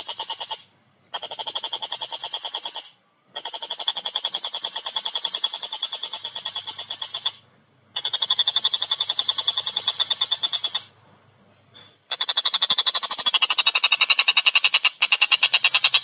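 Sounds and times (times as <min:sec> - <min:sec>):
kingfisher chattering call: 0:08.0 - 0:10.9, 0:12.1 - 0:16.0.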